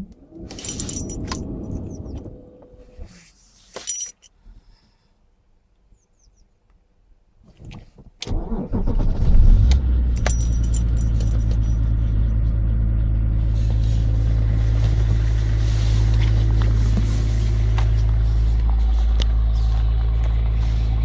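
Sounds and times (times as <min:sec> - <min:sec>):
diesel engine starting and idling: 0:00.0 - 0:02.9, 0:08.2 - 0:21.0.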